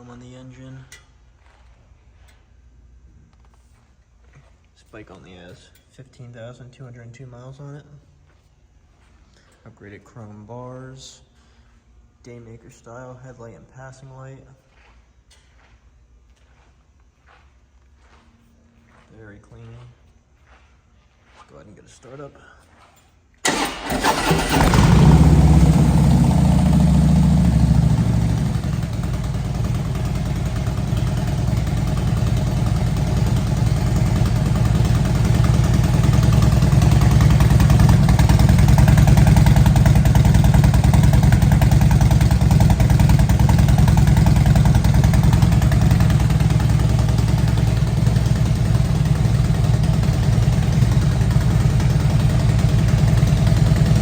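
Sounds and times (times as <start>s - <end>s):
motorcycle engine idling: 23.4s - 54.0s.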